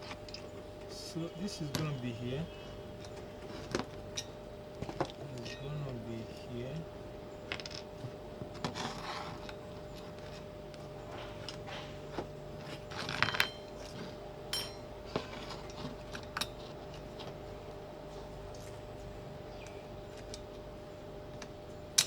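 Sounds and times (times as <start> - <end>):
faint steady hum: 0.0 - 22.0
small metal parts clinking: 13.0 - 13.9, 14.6 - 14.9.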